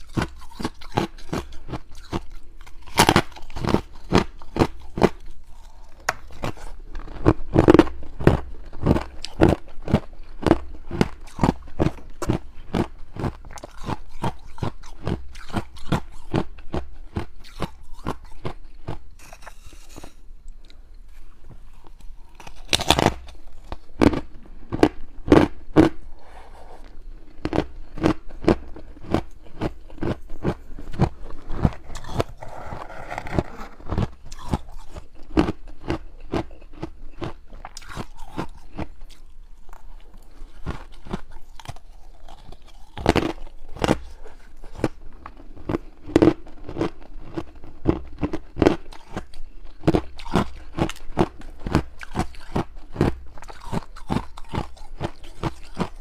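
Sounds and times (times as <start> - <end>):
ice being chewed: 0.0 - 26.1, 26.7 - 56.0.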